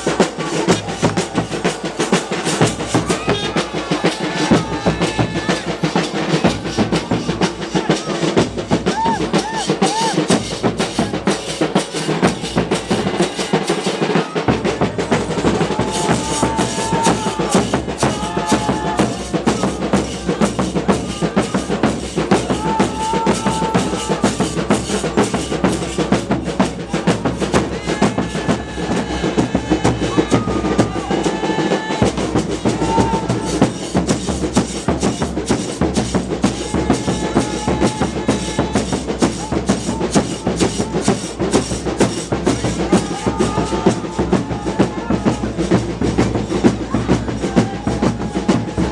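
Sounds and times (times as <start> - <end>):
percussion ensemble drumming fast: 0.0 - 48.9
wind instrument held notes: 12.8 - 48.9.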